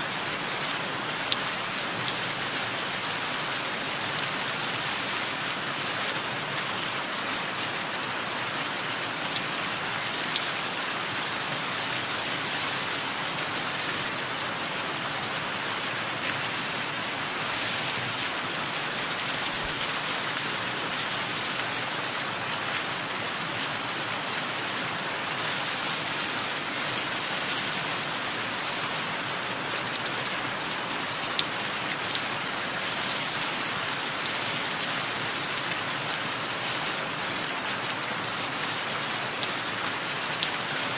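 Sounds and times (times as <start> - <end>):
steady rain: 0.0 - 40.9
small birds chirping: 1.2 - 2.6, 3.2 - 10.4, 11.6 - 13.2, 14.0 - 17.7, 18.6 - 19.8, 20.9 - 29.5, 30.6 - 33.4, 36.6 - 39.2.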